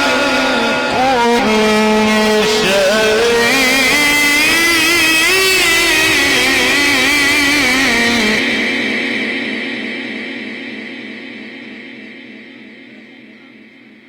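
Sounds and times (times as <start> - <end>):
man chanting melodic recitation: 0.0 - 8.6.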